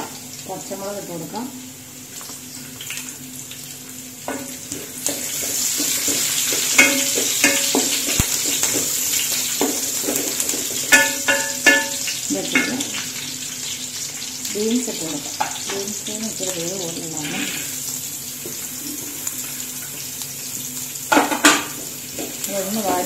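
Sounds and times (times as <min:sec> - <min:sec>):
spices sizzling in hot oil: 0:00.0 - 0:23.0
pan ringing from knocks: 0:06.8 - 0:08.0, 0:10.9 - 0:12.8
wooden spatula scraping pan: 0:17.2 - 0:17.8.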